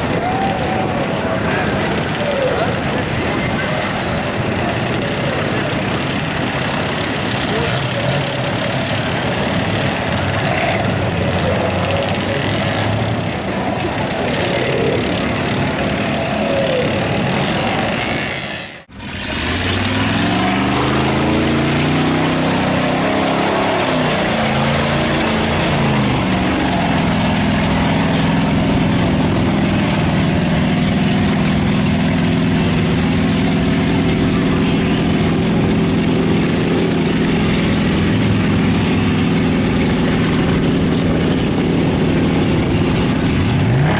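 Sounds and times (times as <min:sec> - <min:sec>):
engine revving: 0:00.0 - 0:43.9
loud truck engines running: 0:00.0 - 0:43.9.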